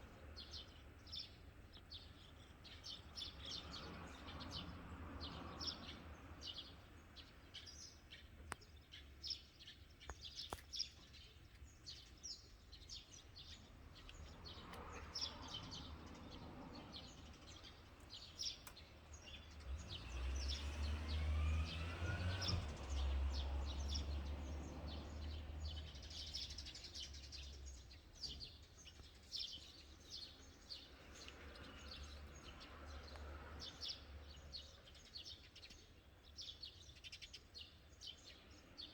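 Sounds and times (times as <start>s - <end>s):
small birds chirping: 0.0s - 38.9s
vehicle passing rumble: 13.8s - 27.9s, 30.7s - 35.1s.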